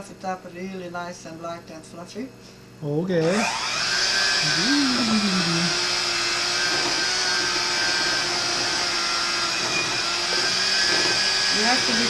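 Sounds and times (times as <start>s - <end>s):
electric kitchen mixer whining: 3.2s - 12.0s.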